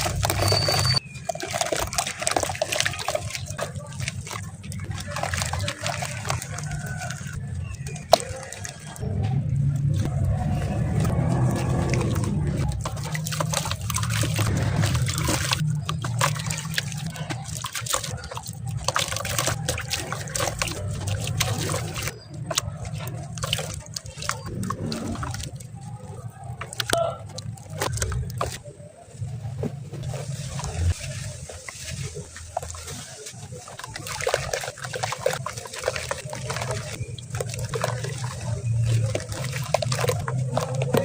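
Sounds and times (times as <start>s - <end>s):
cement chunks crumbling and crushing: 0.0s - 41.0s.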